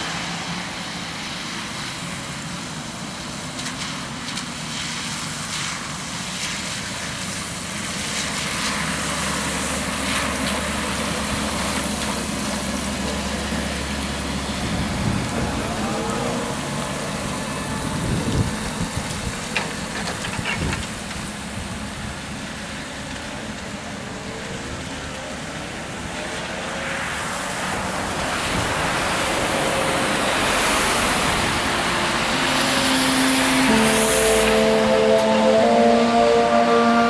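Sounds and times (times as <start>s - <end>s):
trolleybus passing: 0.0s - 37.0s
tyres on wet road: 0.0s - 37.0s
wind noise: 14.6s - 15.8s, 17.7s - 19.5s.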